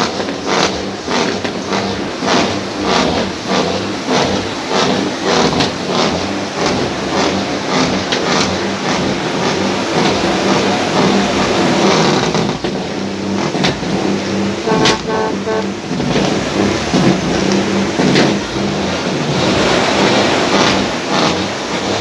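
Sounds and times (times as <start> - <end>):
heavy truck engines revving: 0.0 - 22.0
sharp knocks and clatter: 15.9 - 18.5.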